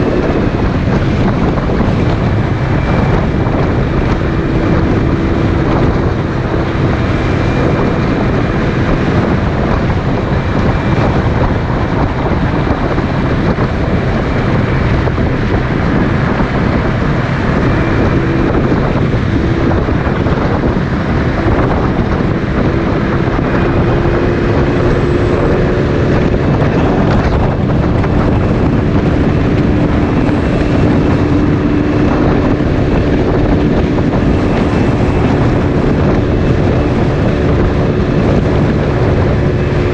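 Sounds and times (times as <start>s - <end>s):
motorcycle engine humming: 0.0s - 39.9s
wind rush on microphone: 0.0s - 39.9s.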